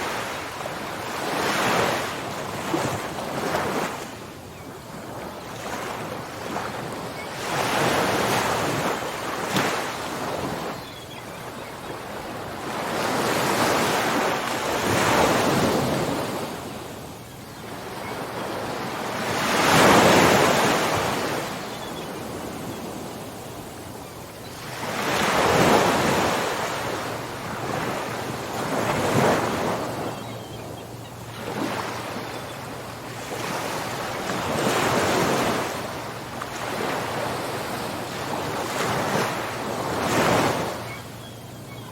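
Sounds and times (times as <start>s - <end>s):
ocean waves breaking on shore: 0.0s - 41.9s.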